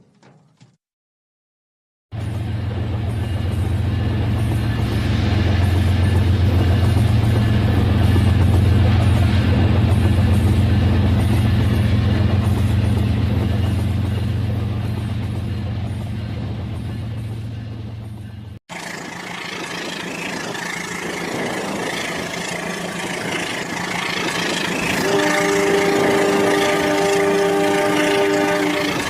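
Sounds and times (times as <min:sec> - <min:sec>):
toy train engine hum: 0:18.7 - 0:29.0
toy horn tones: 0:25.0 - 0:29.0.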